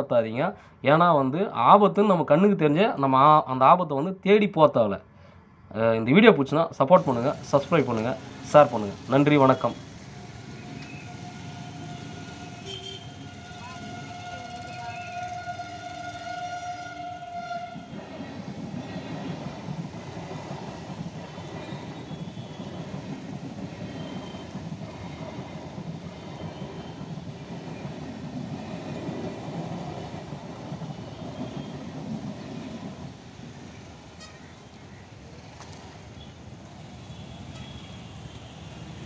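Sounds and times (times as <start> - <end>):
train rumbling on rails: 6.9 - 39.0
crossing warning beep: 9.5 - 16.3, 23.8 - 24.6, 30.9 - 32.0.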